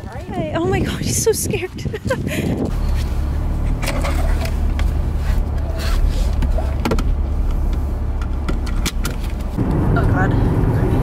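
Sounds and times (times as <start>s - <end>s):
clicks and rustles of movement: 1.5s - 9.6s
car engine idling: 2.7s - 11.0s.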